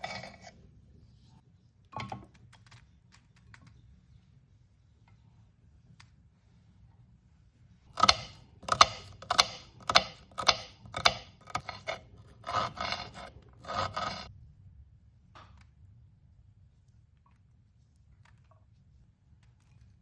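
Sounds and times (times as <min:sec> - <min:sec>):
rasping scraping strokes: 0:00.0 - 0:00.5, 0:07.9 - 0:14.3.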